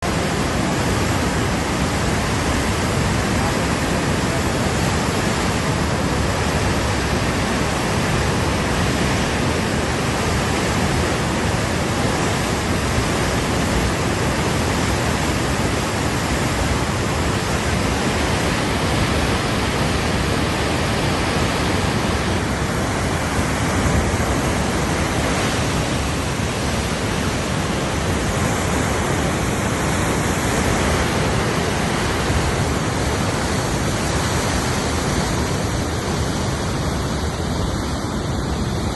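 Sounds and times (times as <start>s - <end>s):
river rushing: 0.0s - 38.9s.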